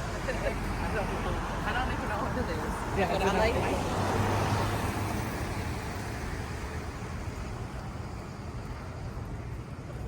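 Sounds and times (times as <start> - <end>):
traffic tyres hissing on wet road: 0.0 - 9.8.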